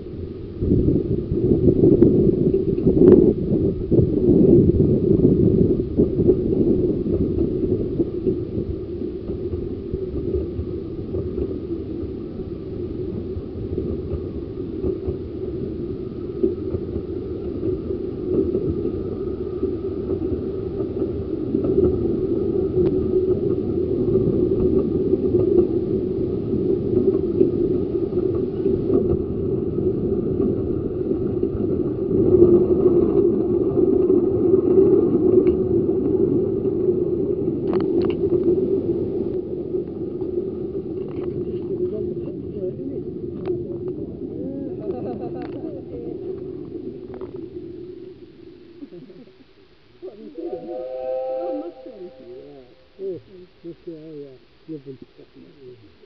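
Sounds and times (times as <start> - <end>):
miniature train wheels rumbling: 3.9 - 47.4.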